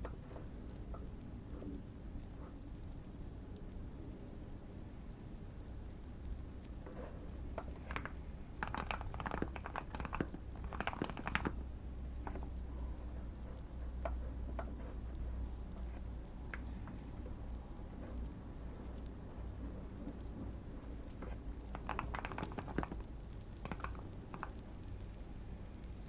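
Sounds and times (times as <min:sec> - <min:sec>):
mechanical keyboard typing: 0:06.3 - 0:17.2, 0:18.0 - 0:24.7.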